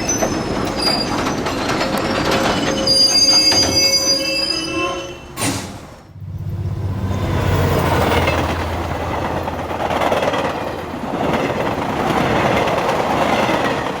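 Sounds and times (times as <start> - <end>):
train running on rails: 0.0 - 14.0
low steady hum: 6.2 - 10.0.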